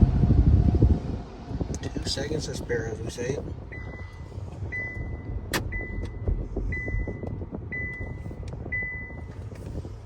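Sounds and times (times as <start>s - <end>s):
car rumbling: 0.0s - 10.0s
high electronic beep: 4.7s - 9.3s.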